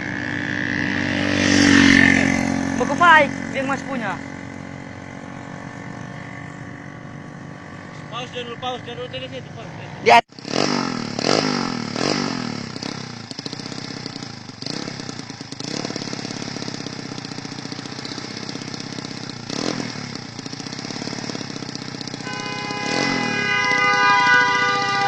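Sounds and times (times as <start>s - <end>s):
motorcycle engine knocking and rattling: 0.0s - 8.2s, 10.3s - 25.0s
vehicle horn: 22.1s - 25.0s.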